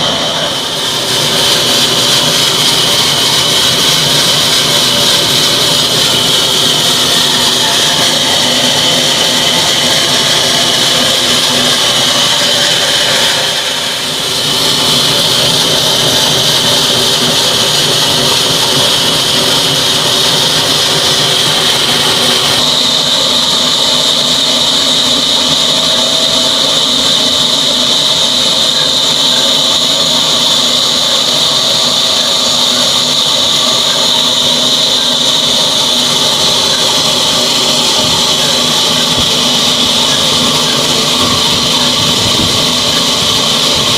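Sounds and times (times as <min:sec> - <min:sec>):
diesel engine running: 0:00.0 - 0:43.9
high whine: 0:00.0 - 0:43.9.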